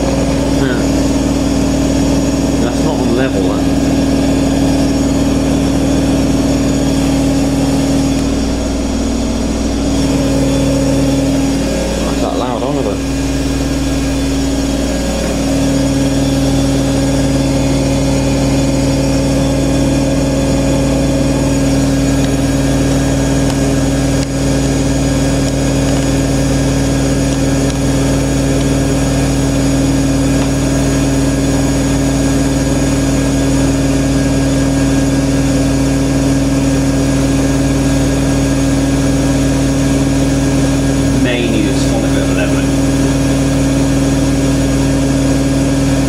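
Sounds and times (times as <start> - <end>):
washing machine spinning: 0.0 - 46.0.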